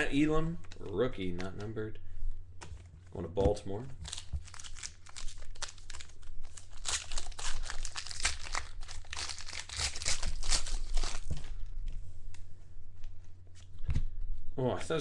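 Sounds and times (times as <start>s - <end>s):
card pack wrapper crinkling: 4.0s - 11.5s.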